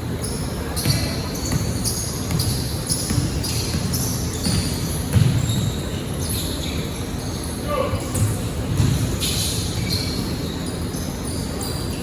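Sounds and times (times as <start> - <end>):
basketball bouncing on floor: 0.8 - 5.8, 8.1 - 9.2.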